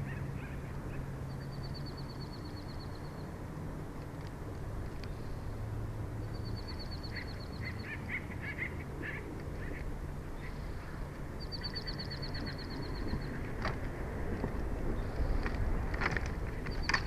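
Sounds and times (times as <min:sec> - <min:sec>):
lower bird chirps: 0:00.0 - 0:03.3, 0:06.2 - 0:13.5
low outdoor rumble: 0:00.0 - 0:17.0.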